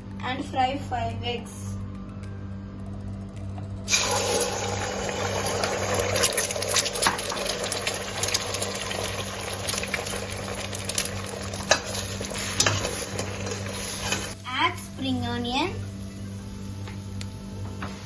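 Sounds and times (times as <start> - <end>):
low hum: 0.0 - 18.0
eggs sizzling in hot oil: 3.9 - 14.9.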